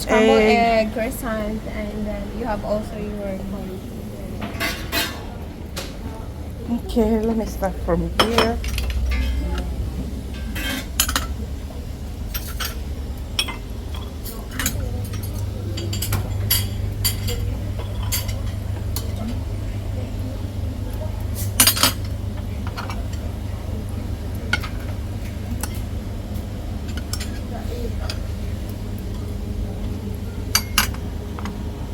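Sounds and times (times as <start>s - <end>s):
utensils and plates clinking: 4.3s - 31.6s
low hum: 5.4s - 27.3s.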